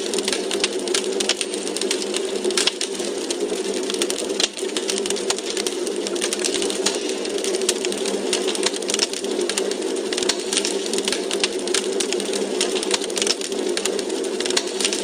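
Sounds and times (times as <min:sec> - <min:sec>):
fire hissing: 0:00.0 - 0:15.0
logs crackling and popping: 0:00.0 - 0:15.0.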